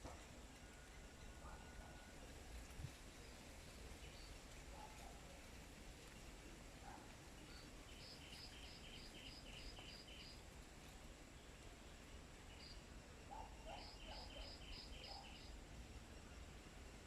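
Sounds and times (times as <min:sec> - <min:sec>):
small bird chirping: 0:07.4 - 0:10.4, 0:13.4 - 0:15.6.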